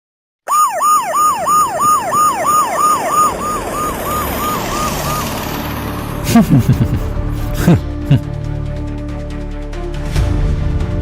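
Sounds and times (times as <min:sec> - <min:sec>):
siren yelping: 0:00.5 - 0:06.8.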